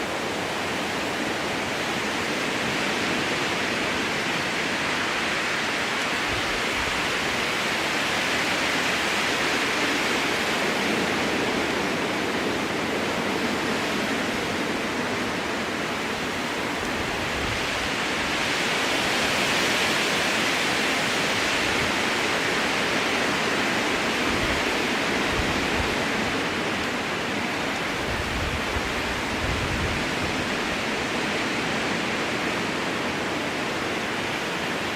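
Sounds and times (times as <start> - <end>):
strong wind through forest: 0.0 - 34.9.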